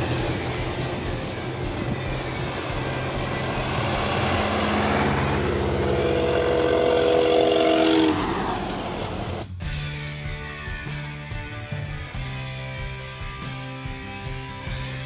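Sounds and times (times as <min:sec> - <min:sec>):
old car engine passing: 0:00.0 - 0:09.6.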